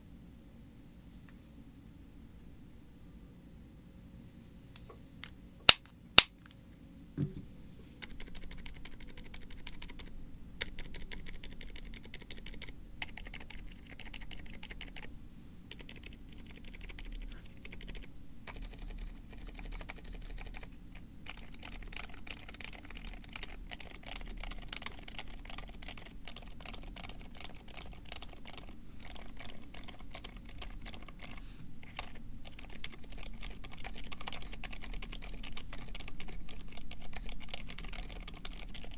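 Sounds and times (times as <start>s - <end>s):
low thump: 7.2s - 7.5s
mechanical keyboard typing: 8.0s - 15.1s, 15.7s - 38.9s.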